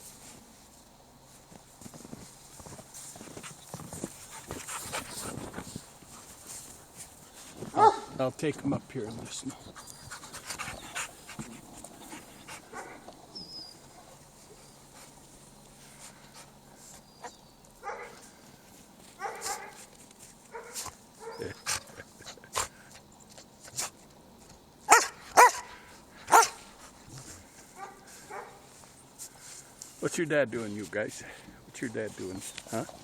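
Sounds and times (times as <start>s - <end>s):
dog barking loudly: 7.7s - 8.2s, 12.6s - 13.0s, 17.8s - 18.2s, 19.2s - 19.8s, 24.9s - 26.6s, 27.8s - 28.6s
dogs whining and yipping: 9.7s - 14.0s.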